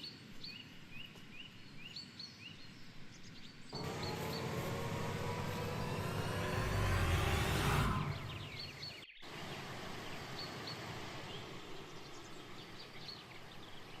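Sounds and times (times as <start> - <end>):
loud rushing noise: 3.8 - 9.0.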